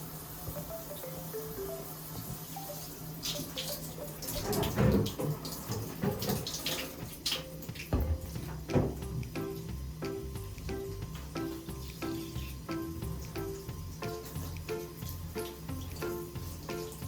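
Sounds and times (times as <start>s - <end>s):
water splashing and running: 0.0s - 17.0s
knocks: 8.0s - 9.2s.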